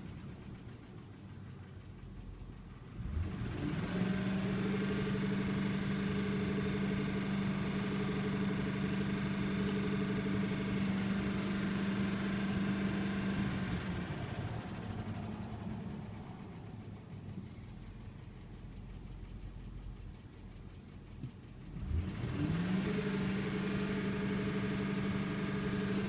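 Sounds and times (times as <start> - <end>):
truck engine revving: 3.0 - 5.7, 21.7 - 26.0.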